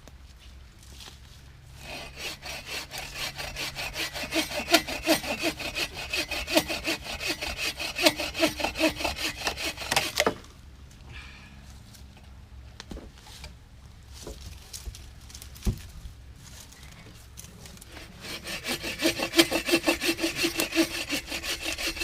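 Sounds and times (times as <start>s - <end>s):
hand saw cutting wood: 1.8s - 10.4s, 17.8s - 22.0s.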